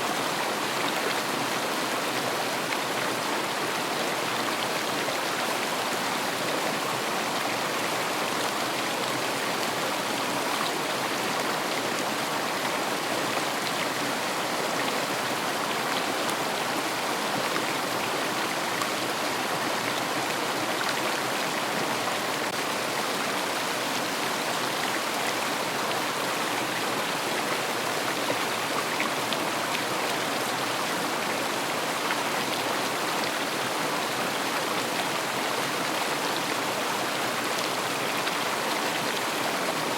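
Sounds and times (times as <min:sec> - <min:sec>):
river water rushing over stones: 0:00.0 - 0:39.9.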